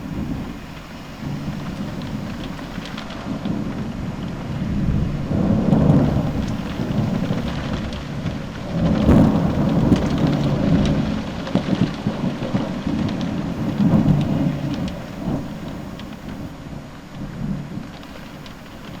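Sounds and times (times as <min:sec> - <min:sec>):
raindrops ticking: 0:00.0 - 0:03.2, 0:06.0 - 0:08.0, 0:08.9 - 0:11.7, 0:13.6 - 0:16.5, 0:18.0 - 0:19.0
thunder rumbling: 0:00.0 - 0:16.6, 0:17.4 - 0:19.0
steady rain: 0:00.0 - 0:19.0.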